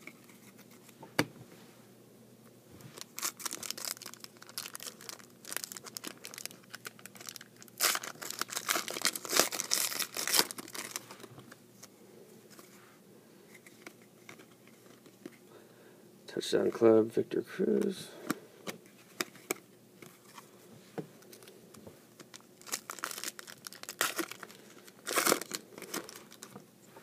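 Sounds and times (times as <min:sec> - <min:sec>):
foil wrapper tearing and crinkling: 0:03.0 - 0:11.2, 0:22.3 - 0:26.5.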